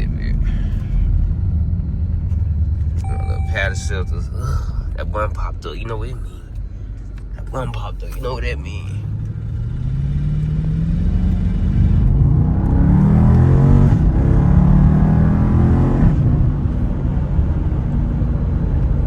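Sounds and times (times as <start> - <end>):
loud car engine accelerating: 9.0 - 19.0.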